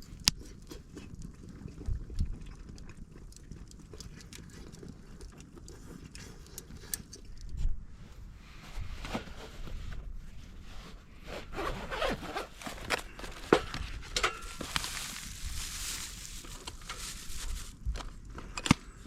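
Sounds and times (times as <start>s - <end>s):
rustling: 8.5s - 18.2s
zipper being pulled: 11.2s - 13.5s.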